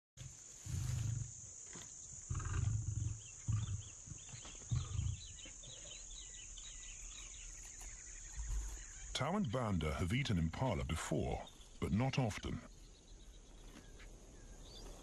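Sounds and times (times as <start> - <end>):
insects chirping: 0.2 - 15.0
lion roaring: 2.3 - 5.3.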